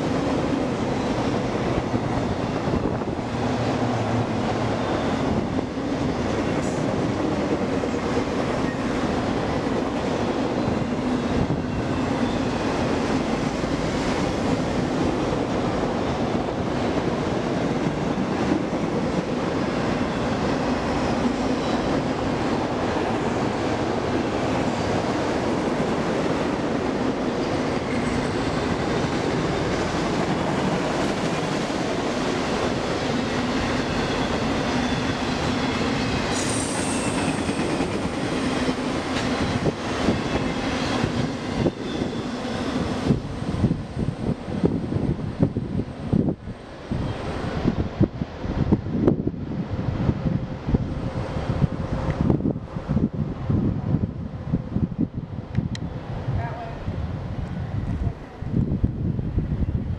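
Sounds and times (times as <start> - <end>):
train wheels rumbling on rail: 0.0 - 59.9
wheel squeals: 40.2 - 42.8.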